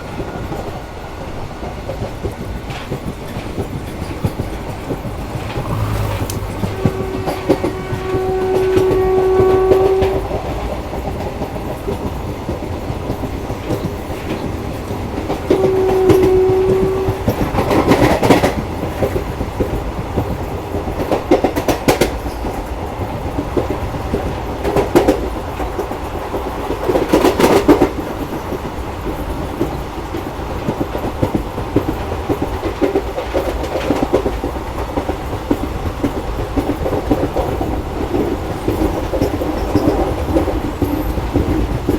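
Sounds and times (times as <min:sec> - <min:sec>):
train wheels clattering on rails: 0:00.0 - 0:41.9
train horn blast: 0:05.0 - 0:10.7, 0:15.5 - 0:17.6.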